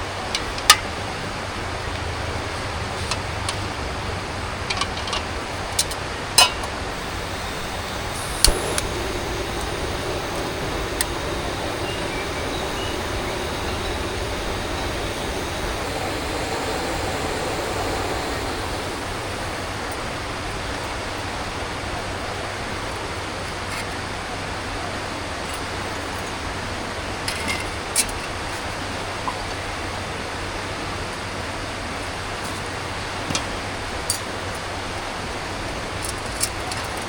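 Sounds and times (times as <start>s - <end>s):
river flowing: 6.9s - 20.5s.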